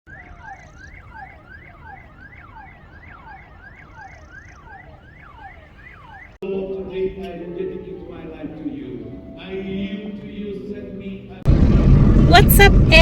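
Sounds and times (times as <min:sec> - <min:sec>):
electronic siren wailing: 0:00.1 - 0:06.4
low background rumble: 0:11.4 - 0:13.0.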